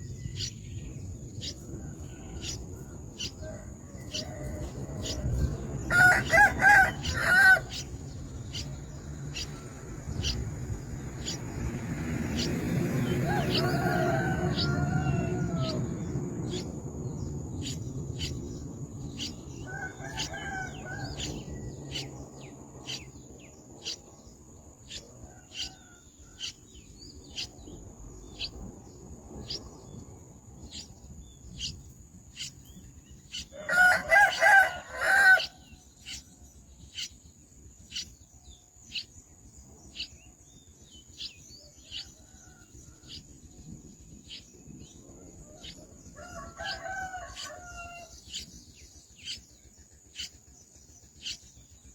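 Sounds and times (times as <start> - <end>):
young birds peeping: 0.0 - 51.9
rooster crowing: 1.7 - 7.9, 13.0 - 16.6, 19.5 - 22.0, 33.5 - 35.8, 45.2 - 48.4.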